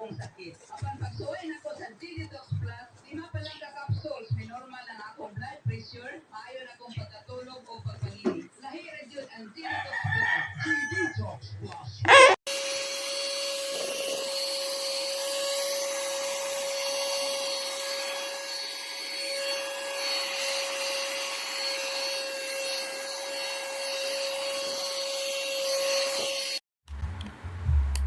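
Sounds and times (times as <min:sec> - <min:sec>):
handheld vacuum cleaner running: 0:12.1 - 0:26.6.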